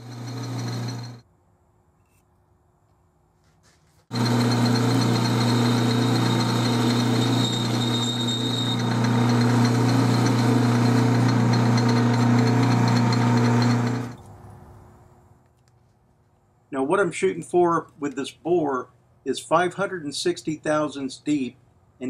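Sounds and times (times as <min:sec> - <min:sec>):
lathe motor hum: 0:00.0 - 0:01.2, 0:04.1 - 0:14.2.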